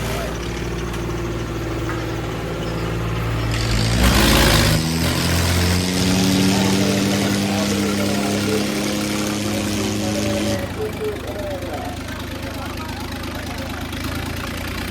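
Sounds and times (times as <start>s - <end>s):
tractor engine revving: 0.0s - 14.9s.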